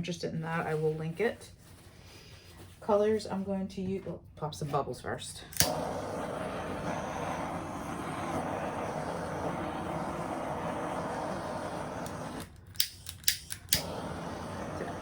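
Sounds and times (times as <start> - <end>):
igniter clicks: 5.5 - 5.9, 12.8 - 14.0
butane torch hissing: 5.6 - 15.0.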